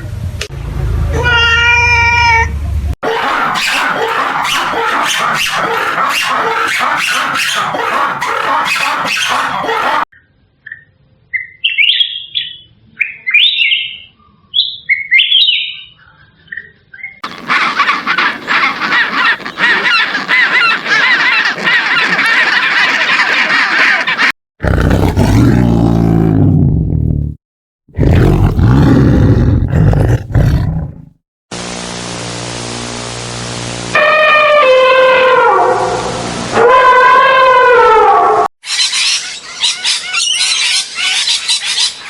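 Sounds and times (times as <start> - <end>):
birds chirping: 3.0 - 10.1, 16.6 - 24.3
low loud animal calls: 3.0 - 10.1.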